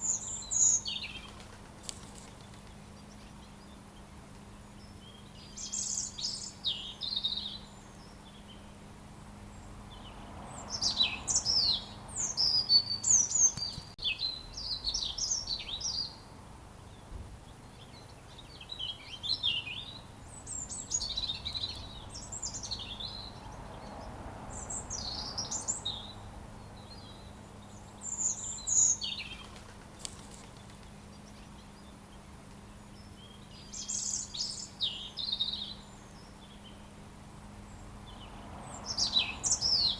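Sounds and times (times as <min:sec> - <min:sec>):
robin singing: 0:00.0 - 0:08.8, 0:09.5 - 0:39.9.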